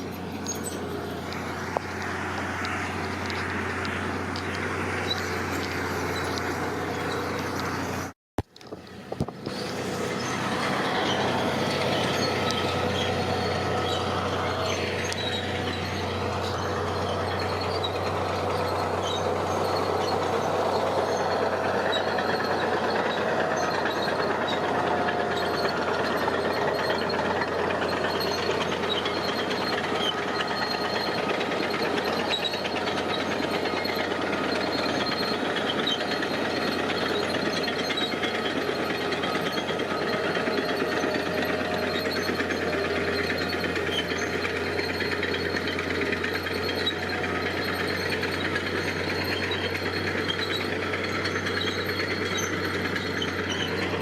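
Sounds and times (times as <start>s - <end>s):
diesel machinery engine hum: 0.0s - 54.0s
mechanical noise: 0.0s - 54.0s
falling then rising whine: 9.3s - 50.4s.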